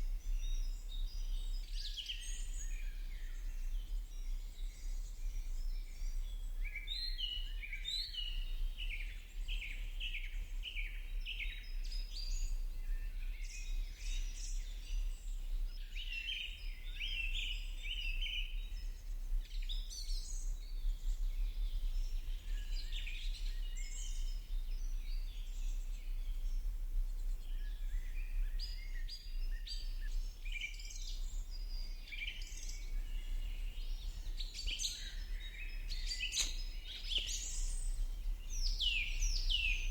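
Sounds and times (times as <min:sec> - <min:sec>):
birds chirping and singing: 0:32.2 - 0:39.9.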